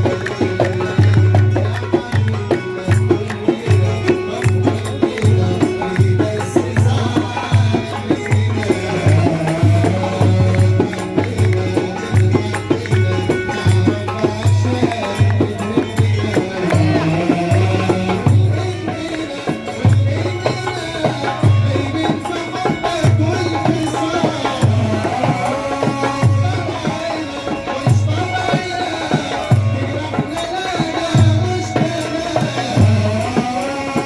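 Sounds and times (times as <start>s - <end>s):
low drum beat: 0.0s - 27.1s
hand percussion: 0.0s - 34.0s.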